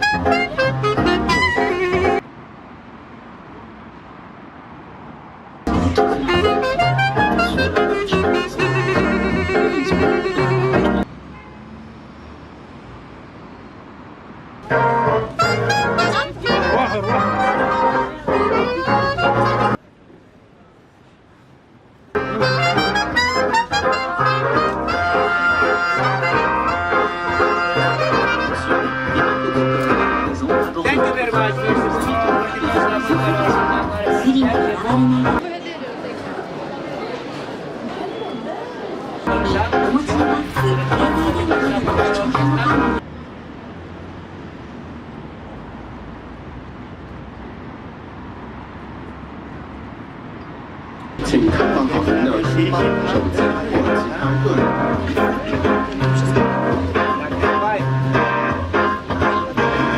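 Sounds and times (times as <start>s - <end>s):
brass band music: 0.0s - 2.2s, 5.7s - 11.0s, 14.6s - 19.8s, 22.2s - 35.4s, 51.2s - 59.9s.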